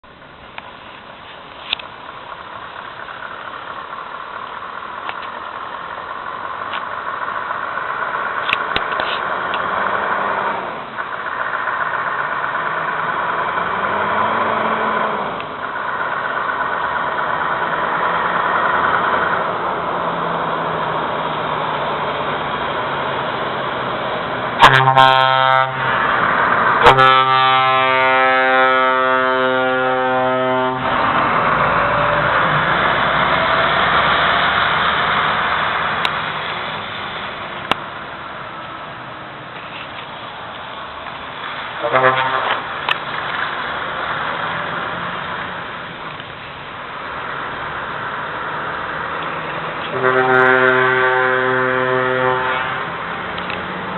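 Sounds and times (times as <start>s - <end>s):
truck engine running: 0.0s - 53.9s
truck air horn blasts: 24.6s - 26.1s, 26.8s - 31.0s, 41.8s - 42.7s, 49.8s - 53.0s.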